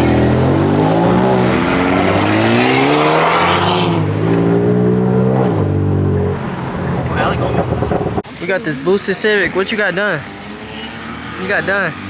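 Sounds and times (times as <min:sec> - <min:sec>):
car engine revving: 0:00.0 - 0:08.2.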